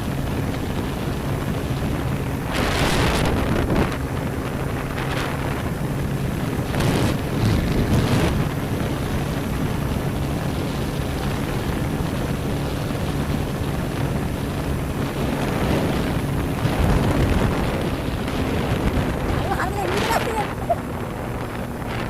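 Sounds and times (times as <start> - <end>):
motorcycle engine hum: 0.0 - 22.0
wind rushing over microphone: 0.0 - 22.0.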